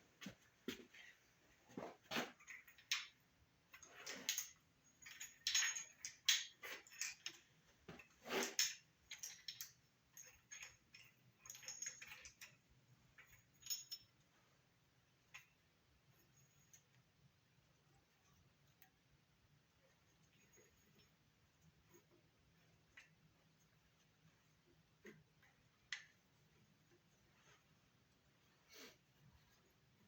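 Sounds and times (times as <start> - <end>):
metal engine parts clinking: 2.4 - 14.2.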